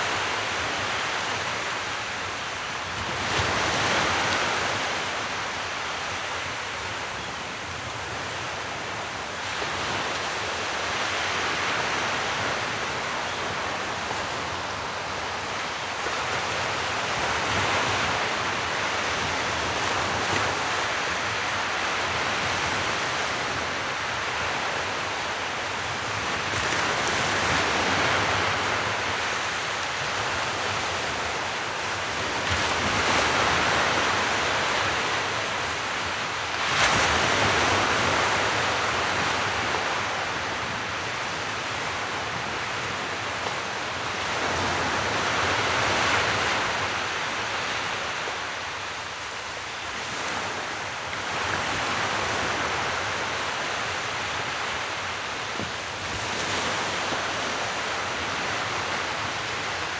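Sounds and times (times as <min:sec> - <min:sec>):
sea waves breaking: 0:32.1 - 0:59.9.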